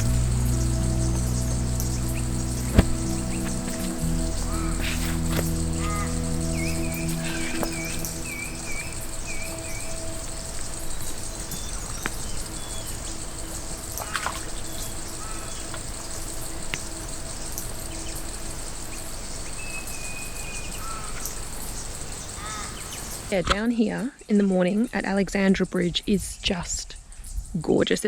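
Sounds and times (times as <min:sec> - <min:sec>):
bird whistled call: 0:00.0 - 0:15.9
birds chirping: 0:00.0 - 0:23.3
high-pitched insect drone: 0:00.0 - 0:23.3.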